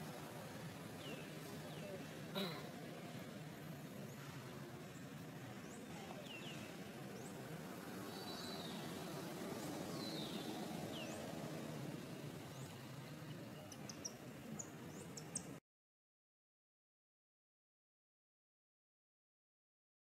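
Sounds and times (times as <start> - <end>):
small birds chirping: 0.1 - 15.6.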